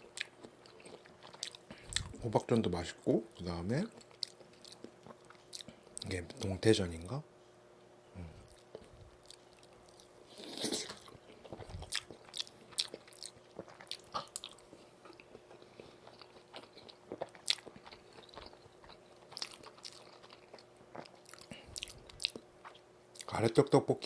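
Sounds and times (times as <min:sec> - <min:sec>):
person biting and chewing food: 0:00.0 - 0:02.2, 0:08.4 - 0:23.4.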